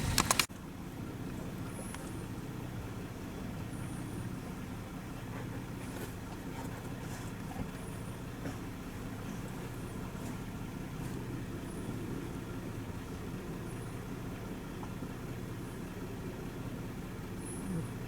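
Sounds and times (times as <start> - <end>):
road noise: 0.0 - 18.0
vehicle engine hum: 0.0 - 18.0.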